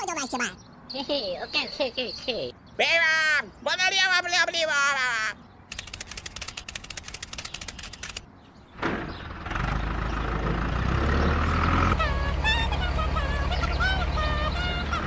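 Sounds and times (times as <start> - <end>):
rapid clicking: 5.7 - 8.2
engine humming: 5.8 - 15.0.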